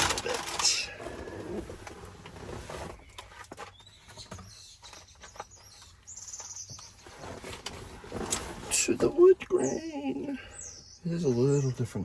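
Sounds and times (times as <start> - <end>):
bird chirping: 2.9 - 12.0.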